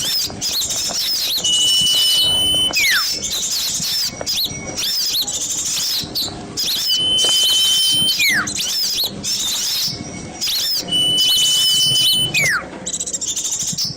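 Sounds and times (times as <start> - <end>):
songbird flock chattering: 0.0 - 13.9
long whistle sliding down: 1.0 - 3.1, 6.6 - 9.1, 10.5 - 12.7.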